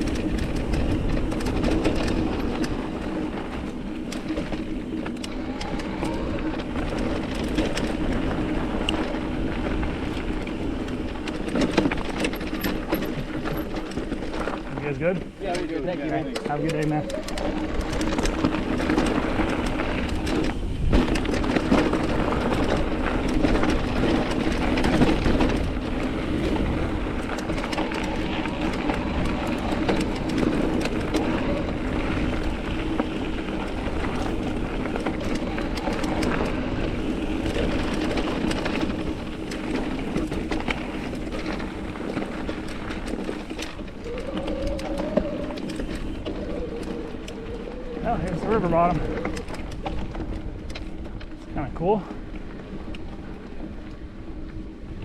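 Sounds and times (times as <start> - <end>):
bike clicks and rattles: 0.0 - 55.0
bike tyres on rocky trail: 0.0 - 55.0.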